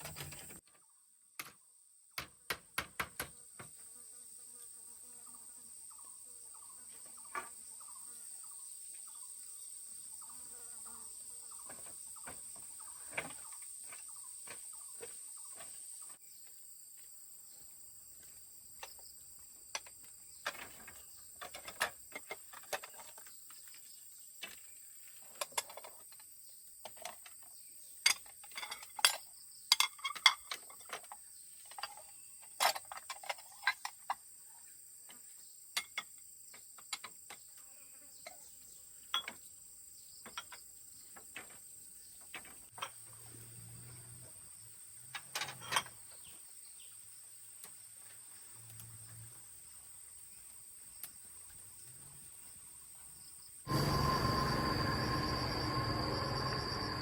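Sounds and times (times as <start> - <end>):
sharp clicks and knocks: 1.4 - 1.6, 2.2 - 3.7
high-pitched insect drone: 53.7 - 57.0.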